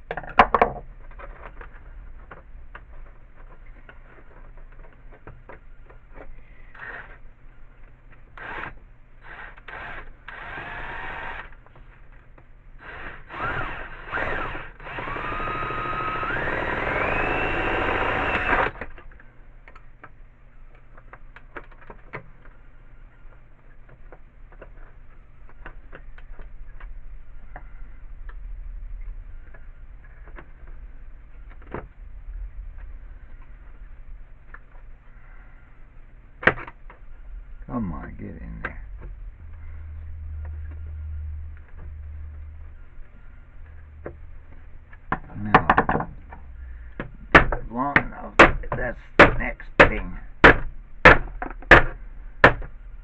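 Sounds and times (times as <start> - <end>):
electric drill running: 8.4 - 11.6, 12.8 - 18.9.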